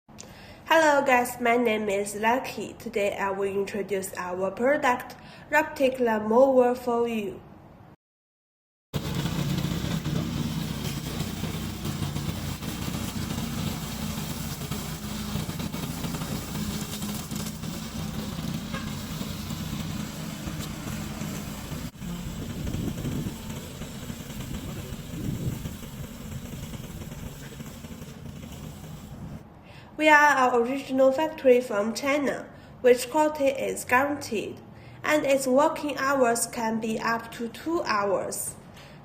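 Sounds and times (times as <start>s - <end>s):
small gasoline engine running: 9.0s - 29.4s.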